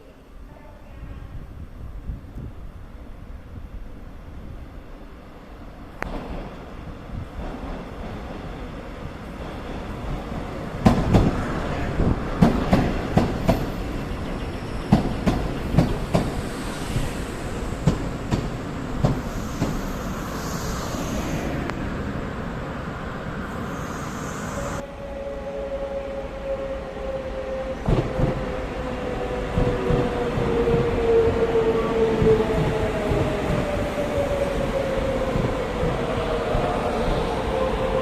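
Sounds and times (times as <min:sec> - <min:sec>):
train wheels knocking on rail joints: 0:14.8 - 0:16.4.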